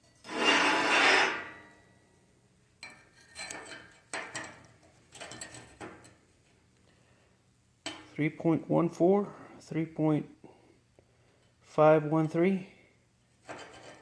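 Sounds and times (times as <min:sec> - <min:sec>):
caliper scraping on steel: 0:00.2 - 0:01.7.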